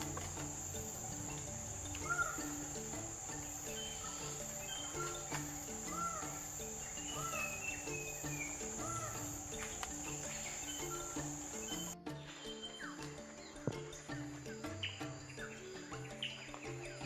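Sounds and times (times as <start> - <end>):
high-pitched insect drone: 0.0 - 17.0
soft background music: 0.0 - 17.0
bird short arched calls: 2.0 - 2.8, 3.7 - 9.4.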